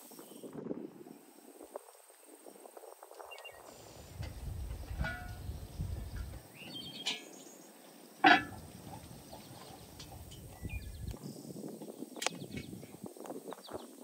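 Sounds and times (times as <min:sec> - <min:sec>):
wind rumbling on microphone: 0:00.0 - 0:07.2, 0:08.2 - 0:14.0
birds chirping: 0:03.2 - 0:14.0.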